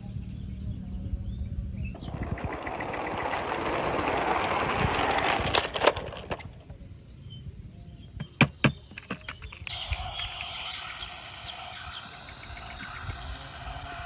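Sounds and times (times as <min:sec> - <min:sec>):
toy car wheels rolling: 0:02.0 - 0:06.7, 0:09.0 - 0:14.0.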